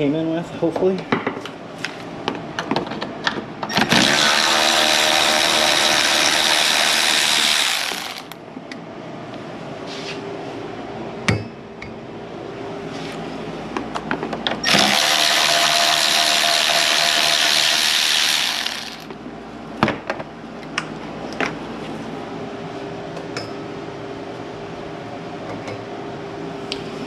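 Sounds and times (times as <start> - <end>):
power tool running: 3.7 - 8.4, 14.6 - 19.1.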